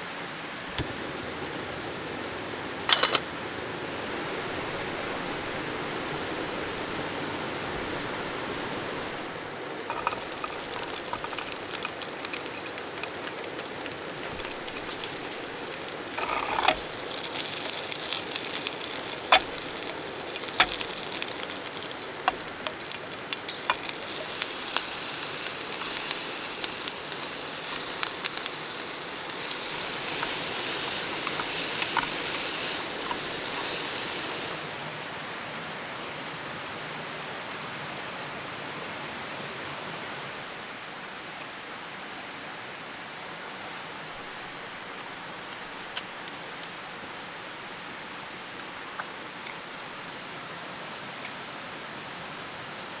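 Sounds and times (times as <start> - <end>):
steady hiss: 0.0 - 35.7
food sizzling in a pan: 9.2 - 35.0.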